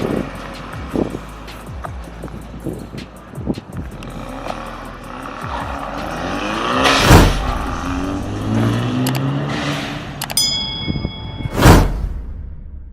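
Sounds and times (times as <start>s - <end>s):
car engine revving: 3.9s - 10.4s
sharp click: 9.0s - 9.3s
ringing tone: 10.4s - 11.6s.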